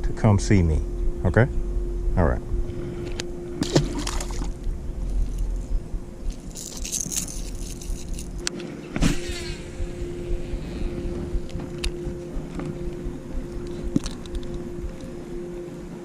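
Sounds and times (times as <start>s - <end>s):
steady low hum: 0.0s - 16.0s
fishing tackle clicking and rattling: 6.3s - 8.5s, 13.6s - 14.6s.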